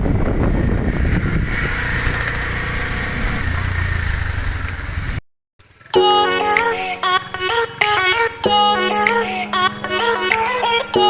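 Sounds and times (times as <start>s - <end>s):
wind noise: 0.0s - 5.2s
motorcycle engine running: 0.0s - 8.4s.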